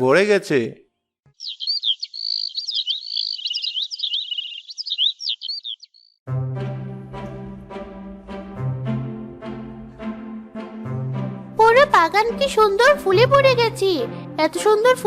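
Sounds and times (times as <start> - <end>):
songbirds chirping and trilling: 1.3 - 6.2
soft orchestral music: 6.3 - 15.0.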